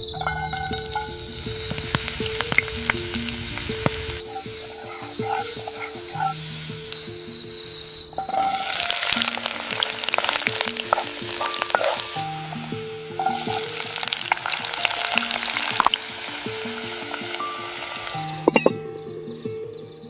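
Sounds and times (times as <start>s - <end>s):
food sizzling in a pan: 0.0s - 19.5s
stirring clicks and scrapes: 3.8s - 7.0s, 8.2s - 12.2s.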